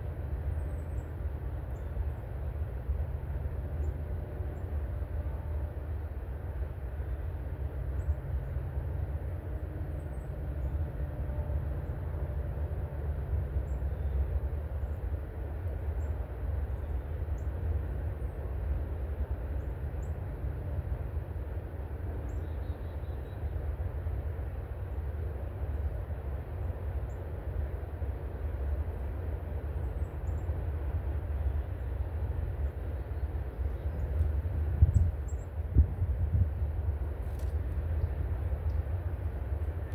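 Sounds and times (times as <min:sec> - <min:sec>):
steady low rumble: 0:24.0 - 0:39.9.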